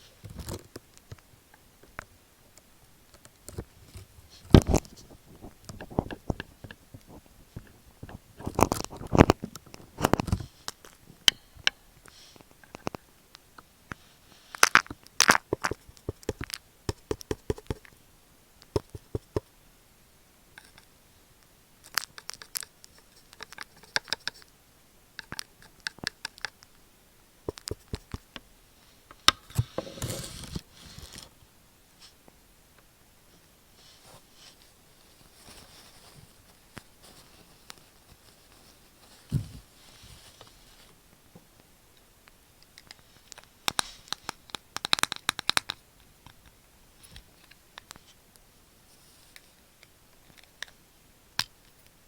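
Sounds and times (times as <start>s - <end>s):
crunching against microphone: 3.1s - 11.5s.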